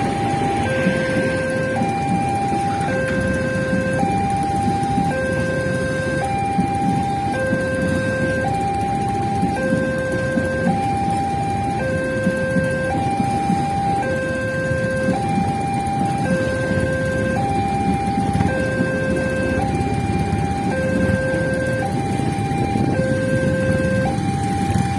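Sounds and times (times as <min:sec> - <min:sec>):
two-tone crossing alarm: 0:00.0 - 0:24.9.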